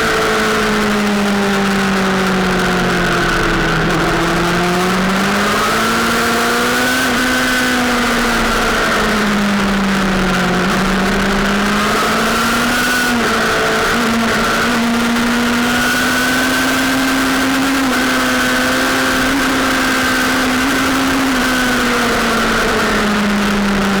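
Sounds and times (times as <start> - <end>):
motorcycle engine running hard: 0.0 - 24.0.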